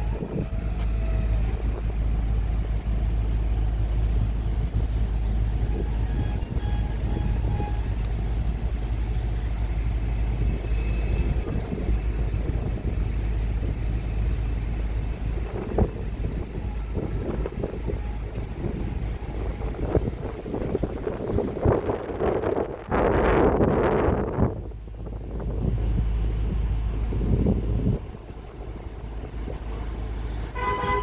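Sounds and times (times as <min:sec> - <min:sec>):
heavy diesel machinery rumble: 0:00.0 - 0:31.0.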